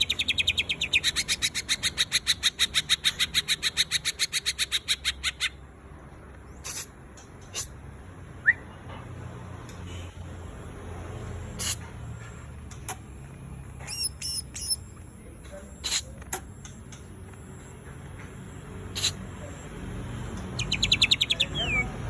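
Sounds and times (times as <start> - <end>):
bird chirps: 0.0 - 5.6, 13.8 - 15.0, 18.9 - 19.6, 20.2 - 22.0
bird singing rapid sharp notes: 0.0 - 5.6, 13.8 - 14.9, 20.2 - 22.0.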